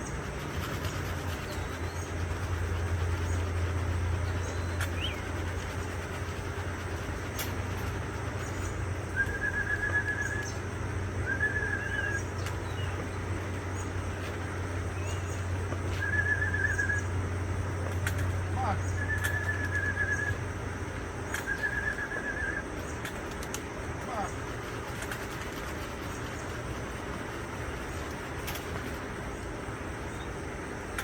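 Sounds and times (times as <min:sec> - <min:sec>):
faint bird chirps: 0:00.0 - 0:17.2, 0:18.1 - 0:20.5, 0:21.3 - 0:23.0
steady low hum: 0:00.0 - 0:31.0.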